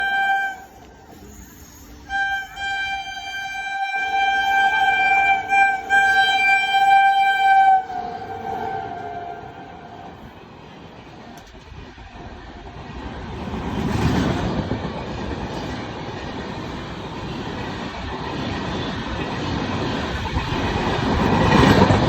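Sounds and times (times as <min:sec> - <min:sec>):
train horn blasts: 0:00.0 - 0:10.8.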